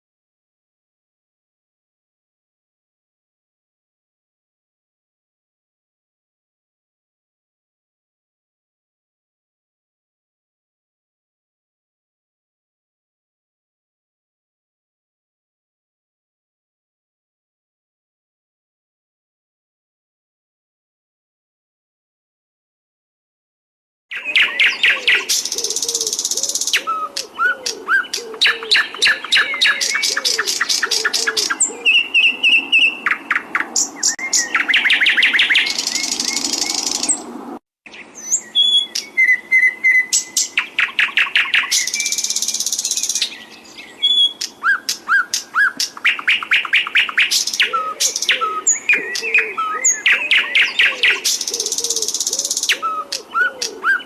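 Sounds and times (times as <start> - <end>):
low warbling bird call: 24.1 - 37.3, 37.9 - 54.0
songbirds singing trills: 24.1 - 37.3, 37.9 - 54.0.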